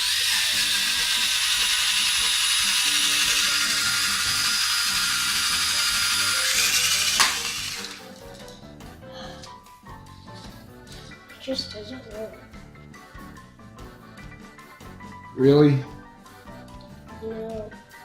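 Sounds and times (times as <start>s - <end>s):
toy helicopter rotor whirring: 0.0s - 8.3s.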